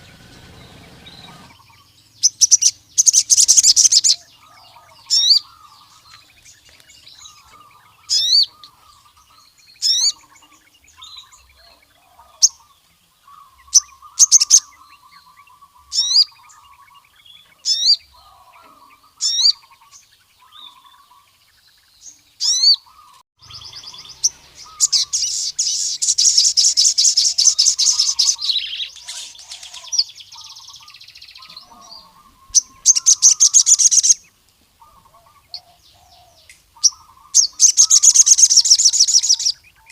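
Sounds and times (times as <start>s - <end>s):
bird high rising notes: 0.0s - 6.1s, 23.0s - 30.7s
soft bird twittering: 0.0s - 39.9s.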